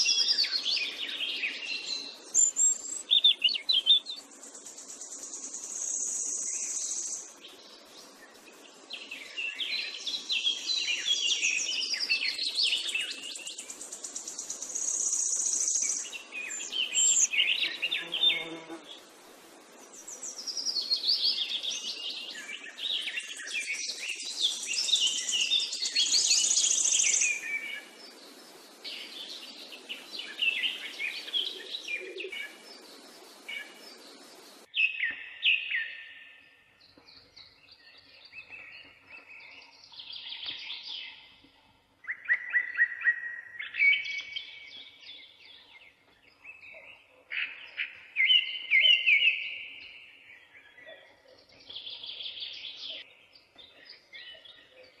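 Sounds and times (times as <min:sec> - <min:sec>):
steady hiss: 0:00.0 - 0:34.7
birds chirping and singing: 0:00.0 - 0:55.0.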